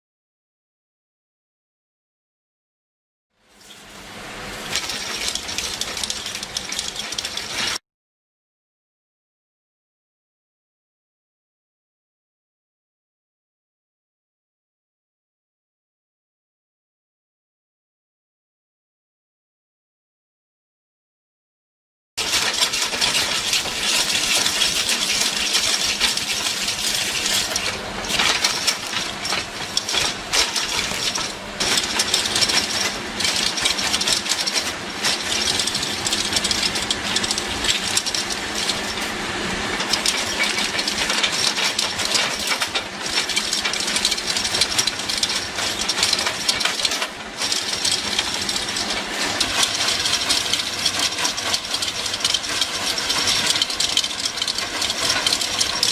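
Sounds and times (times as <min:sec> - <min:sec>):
tree shredder grinding wood: 0:22.5 - 0:42.2.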